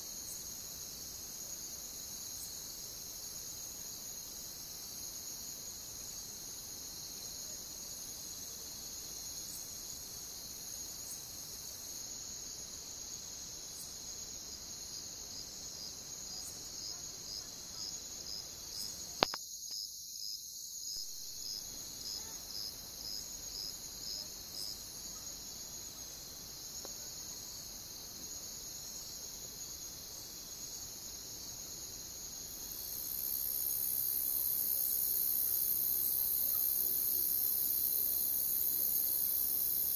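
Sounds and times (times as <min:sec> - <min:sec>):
crickets chirping: 0:00.0 - 0:39.9
sharp click: 0:19.2 - 0:19.8.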